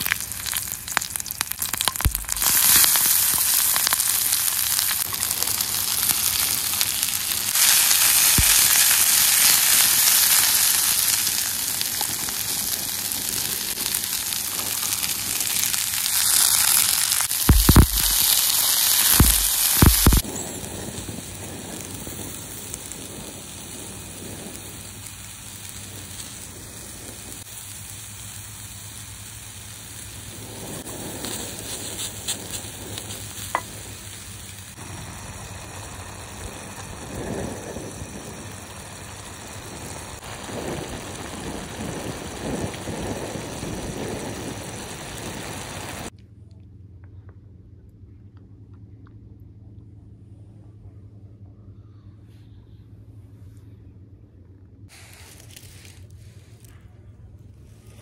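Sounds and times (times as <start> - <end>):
food frying in a pan: 0.0 - 46.1.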